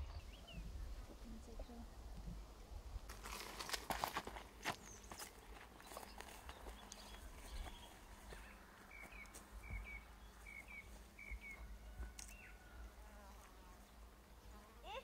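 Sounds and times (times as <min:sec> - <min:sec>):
small bird chirping: 0:04.8 - 0:12.6.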